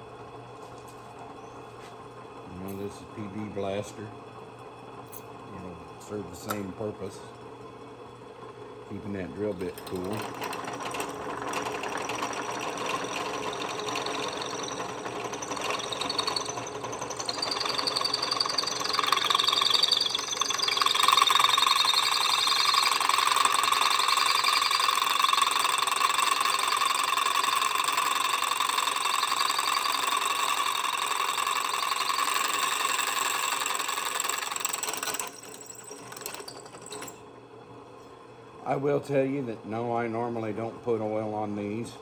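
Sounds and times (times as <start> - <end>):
electric drill boring metal: 9.4 - 37.2.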